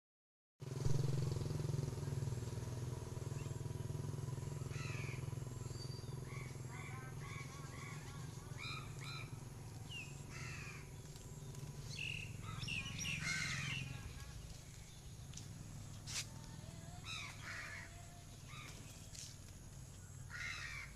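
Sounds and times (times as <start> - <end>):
steady low hum: 0.8 - 20.9
birds calling: 3.3 - 20.9
harsh falling bird cries: 4.5 - 11.1, 11.9 - 14.4, 17.0 - 19.2, 20.2 - 20.9.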